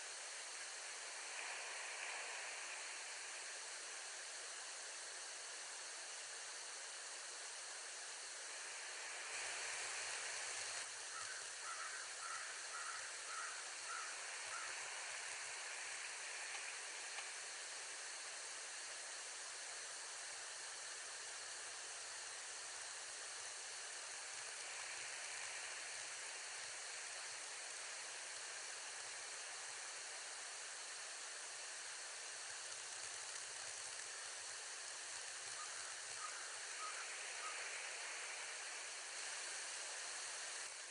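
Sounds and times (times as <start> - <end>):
steady outdoor hiss: 0.0 - 40.9.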